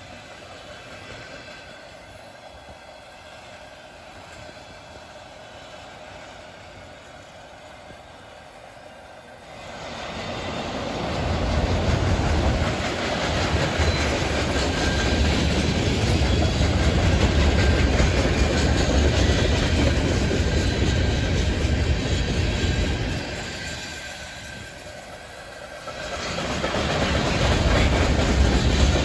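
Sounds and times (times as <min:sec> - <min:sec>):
freight train rumbling: 0:00.0 - 0:29.0
wheels clattering on rails: 0:09.5 - 0:29.0.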